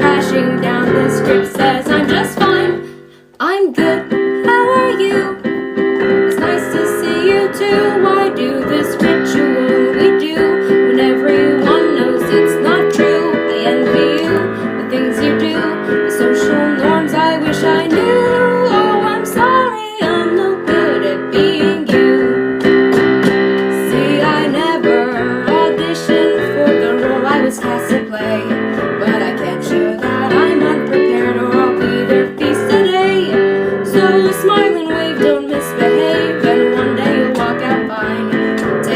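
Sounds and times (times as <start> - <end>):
piano: 0.0 - 38.9
woman singing: 0.0 - 38.9.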